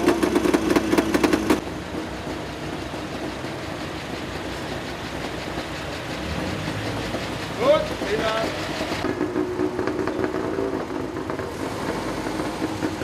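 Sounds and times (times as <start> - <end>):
low engine of slow old car: 0.0 - 13.0
vintage car engine idling: 0.0 - 13.0.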